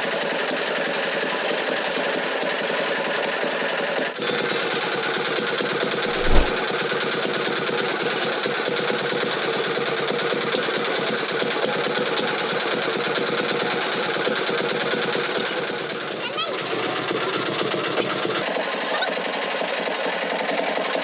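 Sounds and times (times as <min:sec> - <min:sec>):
low thump: 0:06.1 - 0:06.6.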